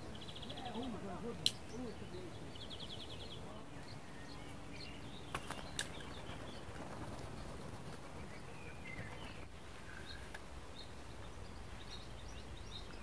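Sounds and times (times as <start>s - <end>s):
small birds chirping: 0.0s - 13.0s
sharp clicks: 1.4s - 1.8s.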